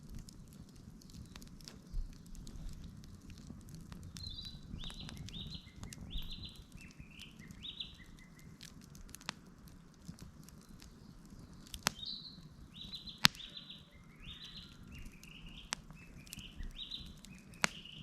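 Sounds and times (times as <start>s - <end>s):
campfire crackling and popping: 0.0s - 18.0s
bird singing high notes: 12.8s - 15.6s.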